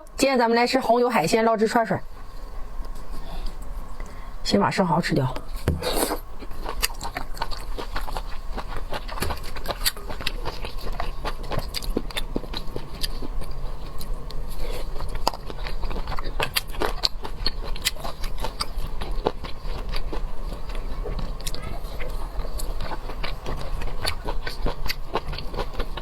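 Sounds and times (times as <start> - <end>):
wet mouth clicks and chewing: 6.0 - 26.0.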